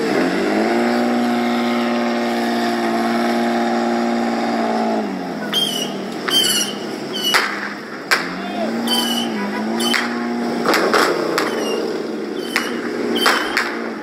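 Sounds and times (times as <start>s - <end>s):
car engine at high revs: 0.0s - 14.0s
high-pitched squeals: 5.4s - 7.7s, 8.4s - 10.3s, 11.4s - 14.0s
sharp crack: 5.4s - 14.0s.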